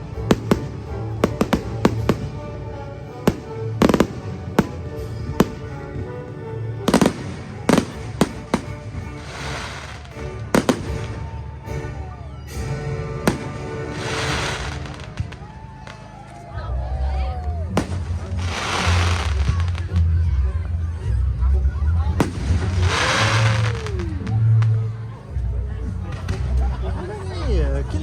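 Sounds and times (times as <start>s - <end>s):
music: 0.0s - 28.0s
fireworks bangs: 0.2s - 2.4s, 6.9s - 11.4s, 13.2s - 16.2s, 17.7s - 20.0s, 22.2s - 24.8s
fireworks crackling hiss: 6.9s - 11.3s, 13.3s - 16.1s, 17.8s - 19.9s, 22.2s - 24.7s.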